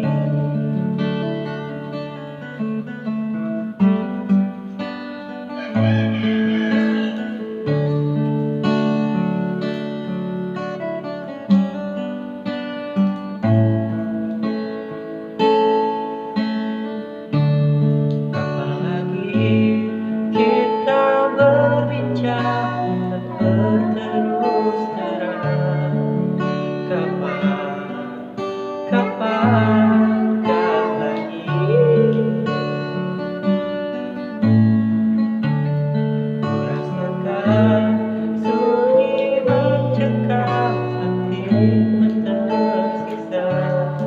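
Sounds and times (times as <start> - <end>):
person singing: 0.0 - 2.5, 5.5 - 7.9, 18.4 - 34.3, 36.4 - 44.0
acoustic guitar strumming: 0.0 - 44.0.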